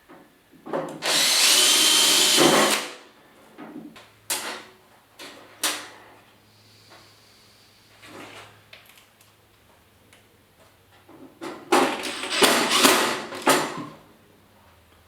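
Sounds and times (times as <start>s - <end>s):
power drill whining: 1.0s - 3.0s, 12.0s - 13.4s.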